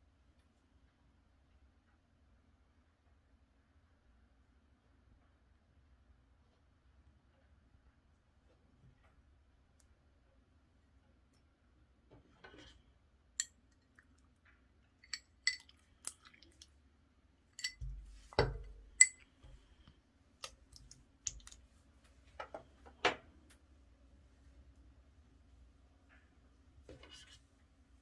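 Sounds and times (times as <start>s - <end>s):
sticky slime squelches: 20.4s - 21.8s.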